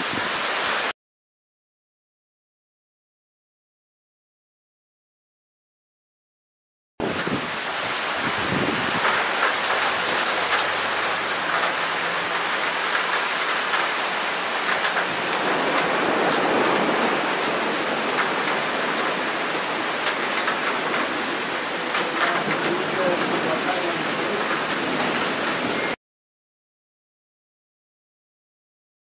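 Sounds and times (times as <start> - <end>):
rain falling steadily: 0.0 - 0.9, 7.0 - 26.0
raindrops ticking: 8.9 - 26.0.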